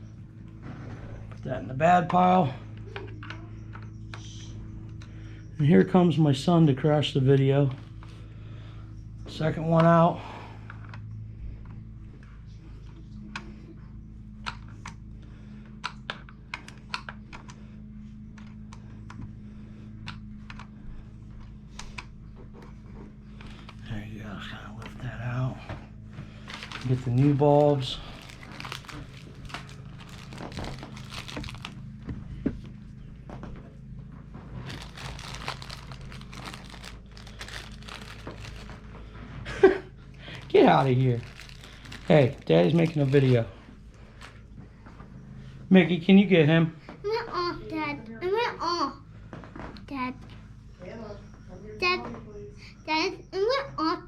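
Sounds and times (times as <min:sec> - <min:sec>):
steady low hum: 0:00.0 - 0:54.0
packaging crinkling and rustling: 0:26.2 - 0:32.1, 0:34.5 - 0:39.1, 0:40.2 - 0:44.4.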